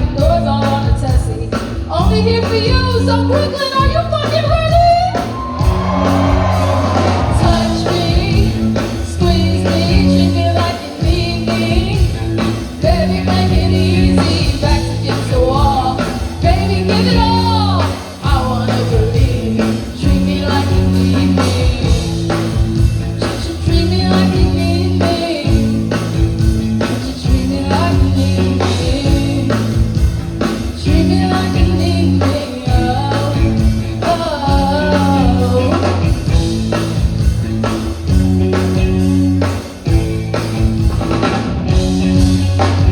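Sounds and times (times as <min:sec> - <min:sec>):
bass line: 0:00.0 - 0:42.9
rock band playing: 0:00.0 - 0:42.9
drum beat: 0:03.8 - 0:10.2, 0:11.1 - 0:42.9
person singing: 0:05.0 - 0:22.6, 0:23.2 - 0:30.0, 0:30.6 - 0:36.4.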